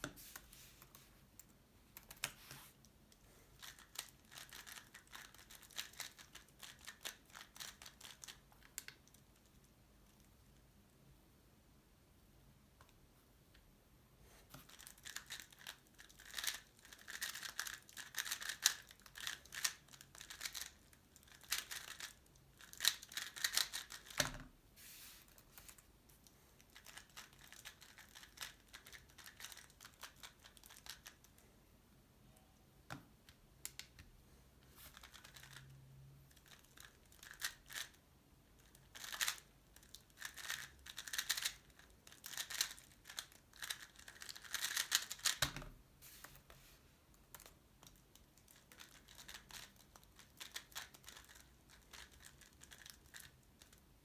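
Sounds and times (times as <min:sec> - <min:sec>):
puzzle cube clicking and rattling: 0:03.5 - 0:09.2, 0:14.6 - 0:24.3, 0:26.6 - 0:31.4, 0:34.9 - 0:35.6, 0:36.4 - 0:38.0, 0:38.6 - 0:45.5, 0:47.4 - 0:53.8.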